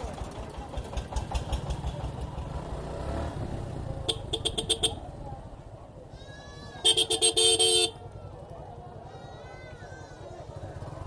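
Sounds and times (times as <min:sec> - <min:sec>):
motorcycle engine running: 0:00.0 - 0:06.0.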